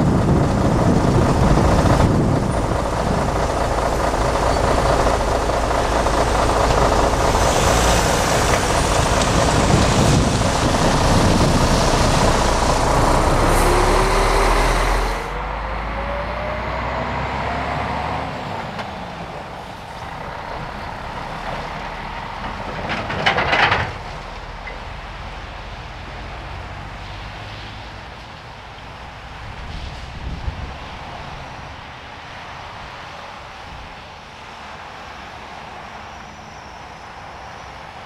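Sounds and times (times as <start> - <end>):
freight train rolling: 0.0 - 38.0.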